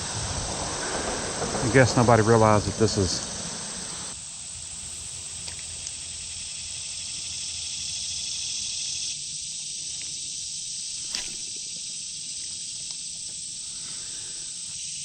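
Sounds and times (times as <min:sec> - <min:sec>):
low rumble of road traffic: 0:00.0 - 0:10.9
insects chorus: 0:00.0 - 0:15.0.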